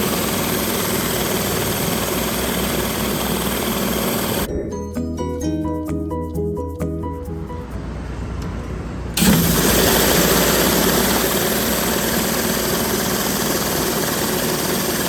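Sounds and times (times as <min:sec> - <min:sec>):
high-pressure water spray hissing: 0:00.0 - 0:04.5, 0:09.2 - 0:15.0
pressure washer engine running: 0:00.0 - 0:04.5, 0:09.2 - 0:15.0.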